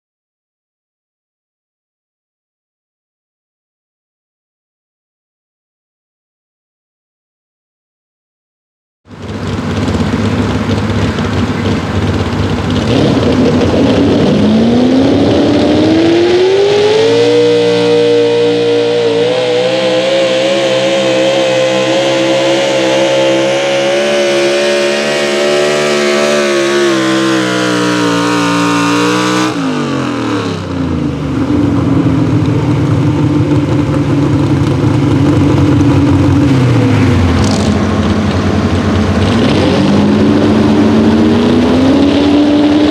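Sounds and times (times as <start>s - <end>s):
truck engine at full throttle: 9.1s - 42.9s.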